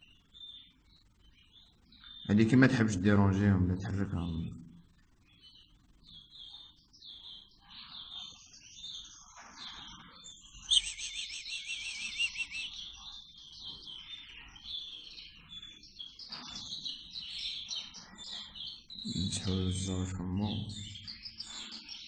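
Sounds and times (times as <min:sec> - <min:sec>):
nestling birds begging chirps: 0:00.0 - 0:22.0
wavering bird trill: 0:05.4 - 0:22.0.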